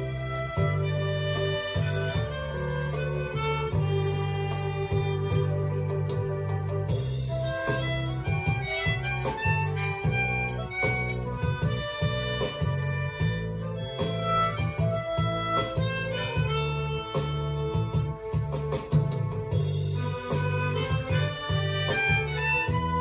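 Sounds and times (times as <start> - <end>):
backing track with bass pulse: 0.0 - 23.0
harmonica melody: 0.0 - 23.0.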